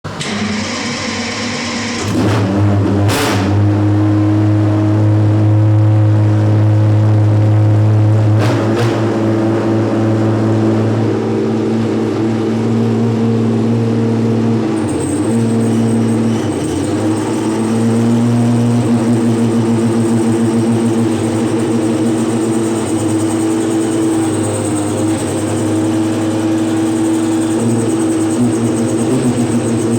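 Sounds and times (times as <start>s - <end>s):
racing car engine: 0.0s - 29.9s
thin high whine: 9.6s - 29.9s.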